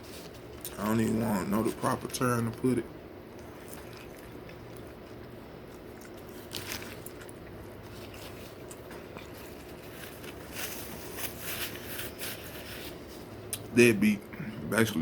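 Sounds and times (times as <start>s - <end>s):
man chewing crunchy food: 3.3s - 12.3s.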